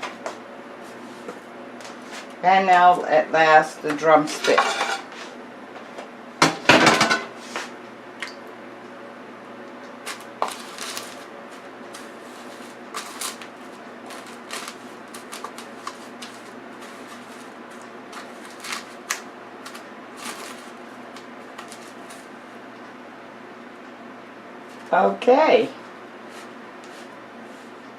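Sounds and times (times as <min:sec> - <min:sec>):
breadcrumbs crackling and rustling: 0:09.9 - 0:22.4.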